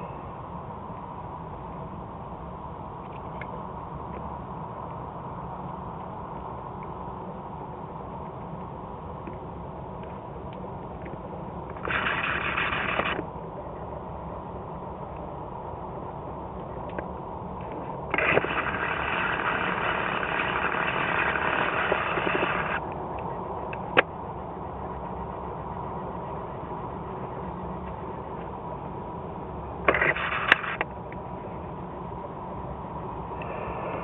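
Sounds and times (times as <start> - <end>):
jet engines rumbling: 0.0 - 34.0
harsh rush of air: 11.7 - 13.5, 17.4 - 22.9, 32.1 - 34.0.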